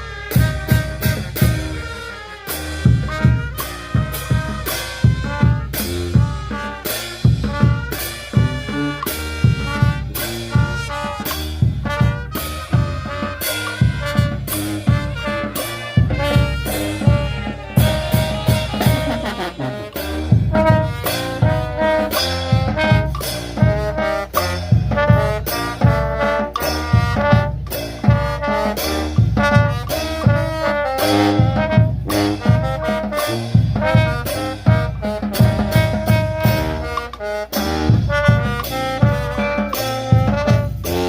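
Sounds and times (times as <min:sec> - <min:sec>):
brass band music: 0:00.0 - 0:41.0.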